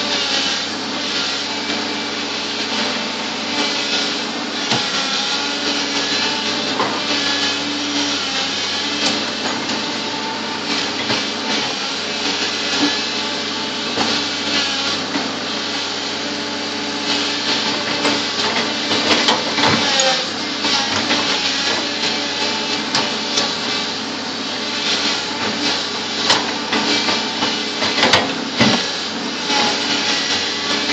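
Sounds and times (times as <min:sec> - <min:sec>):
bulldozer diesel engine: 0:00.0 - 0:30.9.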